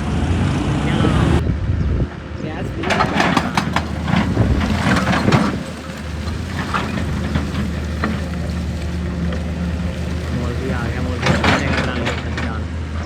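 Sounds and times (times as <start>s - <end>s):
heavy diesel engine running: 0.0s - 13.0s
clattering engine knocks: 2.0s - 13.0s.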